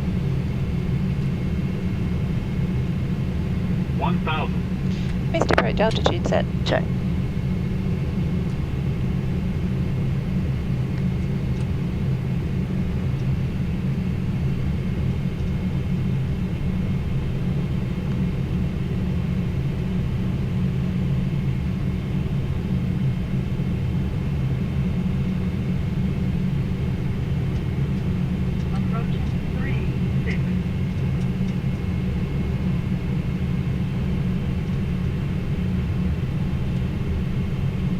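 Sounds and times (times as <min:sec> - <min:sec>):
low rumble of airflow and engines: 0:00.0 - 0:37.9
faint high whine: 0:03.8 - 0:06.9.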